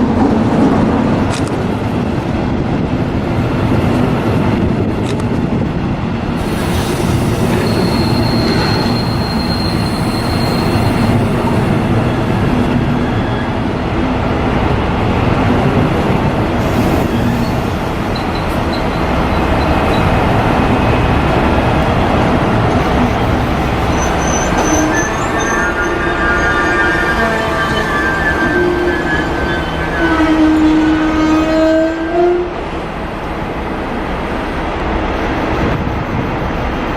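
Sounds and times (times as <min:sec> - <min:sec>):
train rumbling on rails: 0:00.0 - 0:36.9
high wheel squeal: 0:07.1 - 0:11.8, 0:22.8 - 0:30.6.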